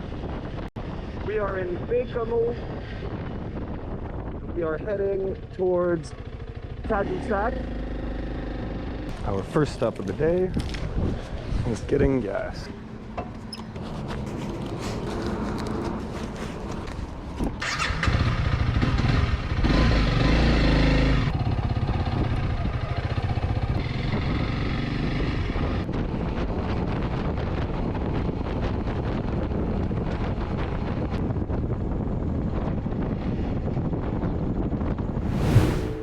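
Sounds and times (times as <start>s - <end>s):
motorcycle engine starting and running: 4.9s - 9.4s, 17.4s - 25.6s.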